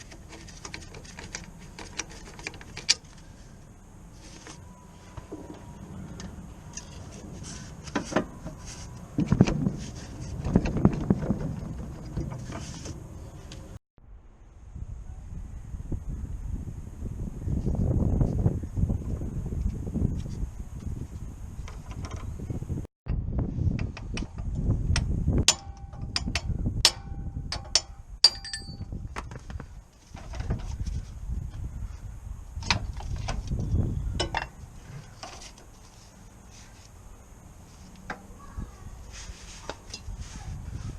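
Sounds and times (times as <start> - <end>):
knocking and clatter: 9.2 - 13.0
metal tools clinking together: 27.6 - 28.9.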